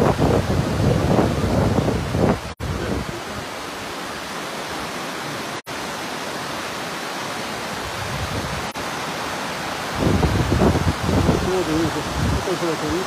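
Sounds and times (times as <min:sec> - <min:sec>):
river rushing water: 0:00.0 - 0:13.0.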